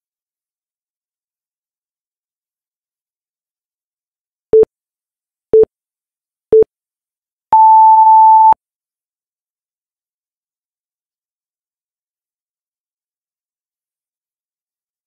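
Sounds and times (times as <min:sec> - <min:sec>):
long higher timer beep: 0:07.6 - 0:08.6
short timer beeps: 0:07.6 - 0:08.6.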